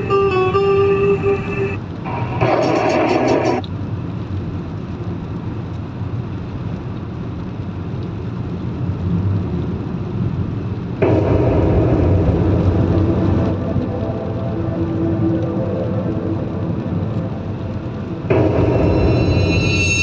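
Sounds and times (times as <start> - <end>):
music from car stereo: 0.0 - 3.6
car road and engine rumble: 0.0 - 19.2.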